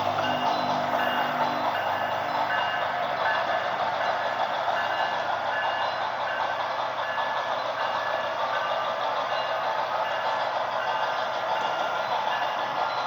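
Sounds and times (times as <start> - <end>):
model locomotive engine sound: 0.0 - 13.0.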